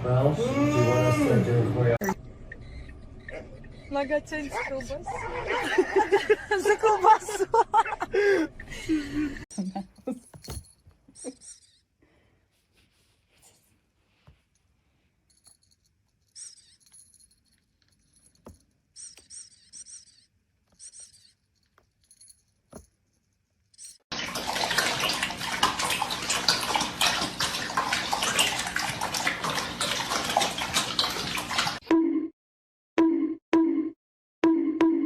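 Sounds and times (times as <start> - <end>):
tap water running hard: 24.1 - 31.8.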